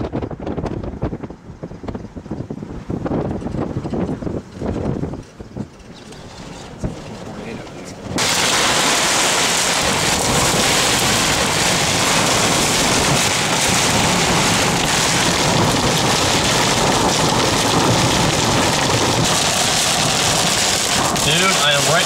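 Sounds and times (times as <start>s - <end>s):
heavy rain beating on vehicle: 7.2s - 22.0s.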